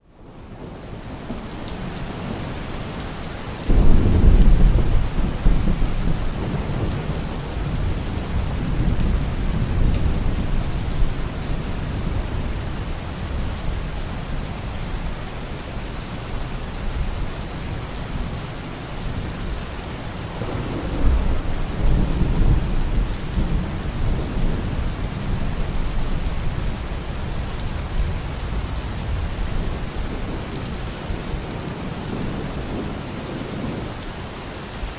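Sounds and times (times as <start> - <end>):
heavy rain: 0.0 - 34.9
thunder rumbling: 3.6 - 13.8, 20.2 - 33.8.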